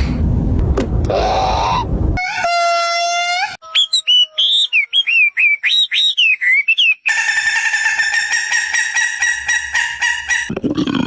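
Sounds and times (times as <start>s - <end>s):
deep animal sound: 1.0s - 3.6s, 10.1s - 11.0s
harsh buzzy bird call: 2.2s - 10.5s.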